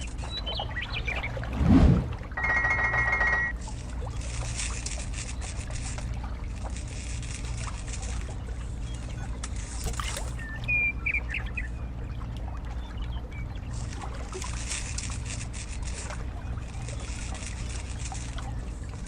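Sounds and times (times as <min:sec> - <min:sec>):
low hum: 0:00.0 - 0:19.0
water trickling: 0:09.8 - 0:14.6.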